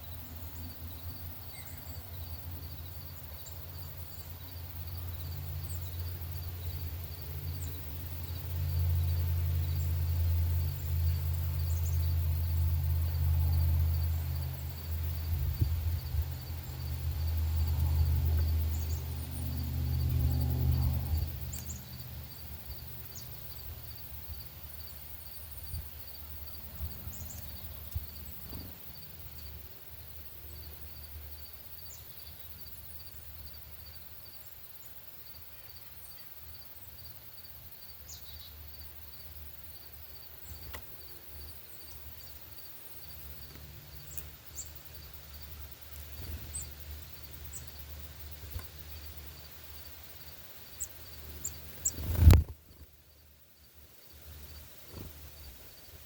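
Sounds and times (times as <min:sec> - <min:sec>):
low steady rumble: 0:00.0 - 0:30.6
cricket chirping: 0:00.0 - 0:56.0.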